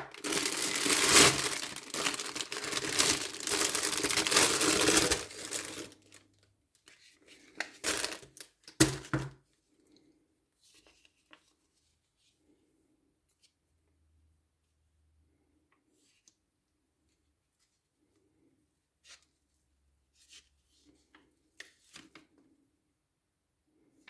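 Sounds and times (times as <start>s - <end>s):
packaging rustling: 0.0s - 6.2s, 7.6s - 9.1s.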